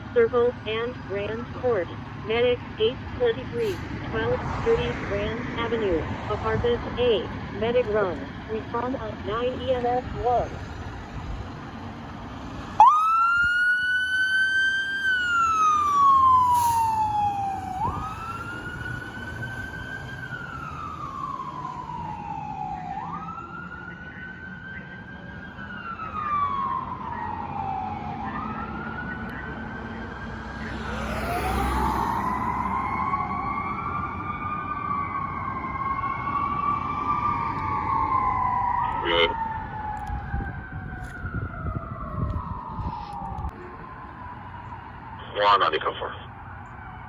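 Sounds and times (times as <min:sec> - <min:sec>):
emergency siren wailing: 0:00.0 - 0:47.0
second siren wailing: 0:12.7 - 0:47.0.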